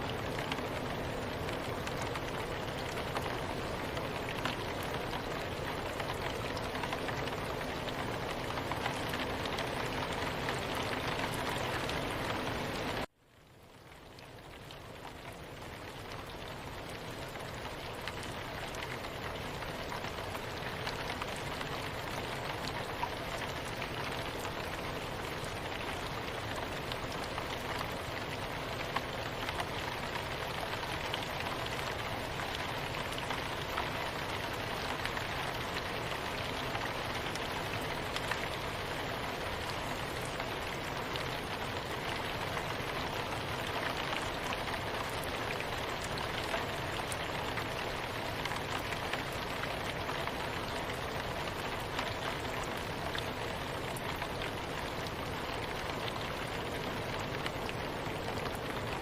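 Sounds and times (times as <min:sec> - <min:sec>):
soft rain pattering: 0:00.0 - 0:59.0.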